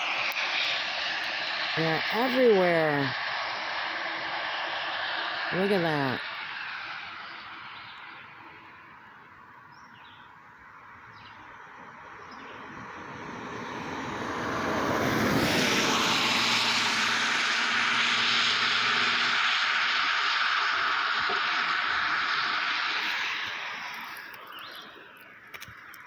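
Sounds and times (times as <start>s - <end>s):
vehicle approaching: 11.2s - 26.0s.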